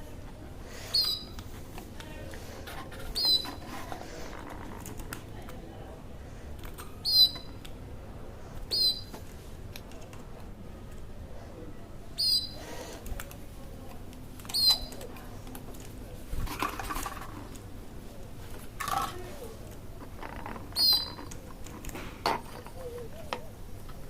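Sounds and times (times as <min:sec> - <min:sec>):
bird chirping: 0:00.9 - 0:01.4, 0:03.2 - 0:03.6, 0:07.0 - 0:07.5, 0:08.7 - 0:09.1, 0:12.2 - 0:12.6, 0:14.5 - 0:15.0, 0:20.8 - 0:21.2.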